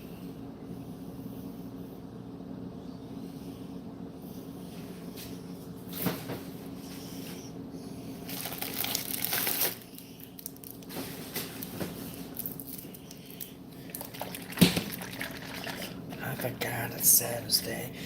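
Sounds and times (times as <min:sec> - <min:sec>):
crinkling and rustling: 0:08.2 - 0:15.2.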